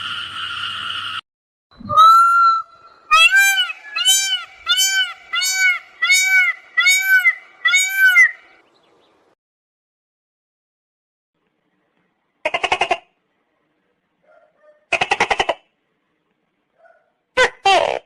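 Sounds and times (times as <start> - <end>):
animal calling arched calls: 1.8 - 8.6.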